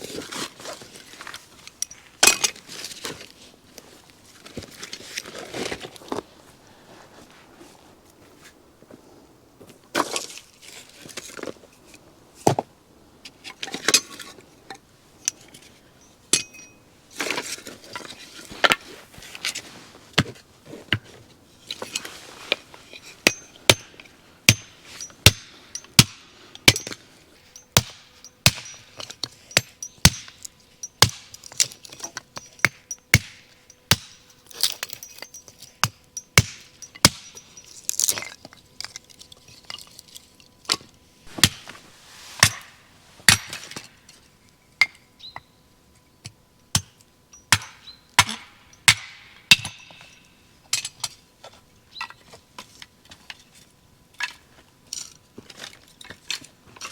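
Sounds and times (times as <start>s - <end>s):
hard objects knocking and clinking: 26.7s - 38.4s.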